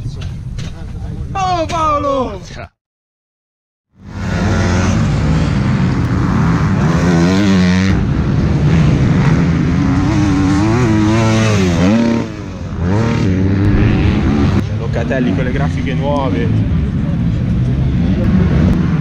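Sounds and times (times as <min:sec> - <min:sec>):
motocross bikes revving: 0:04.0 - 0:19.0.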